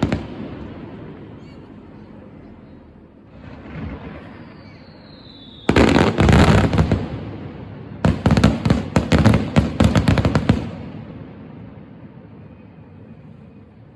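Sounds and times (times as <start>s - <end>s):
crackling firework bangs: 0.0s - 1.6s, 3.3s - 12.1s.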